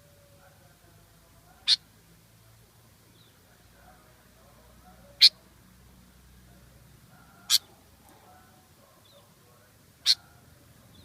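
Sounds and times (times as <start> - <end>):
bird calling sharp notes: 1.6 - 1.8, 7.4 - 7.8, 10.0 - 10.3
faint bird chirps: 7.1 - 9.3, 10.0 - 11.0.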